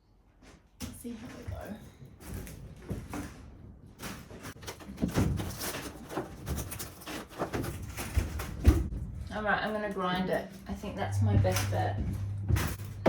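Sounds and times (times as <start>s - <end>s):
knocks and scrapes on wall panel: 2.4s - 9.0s.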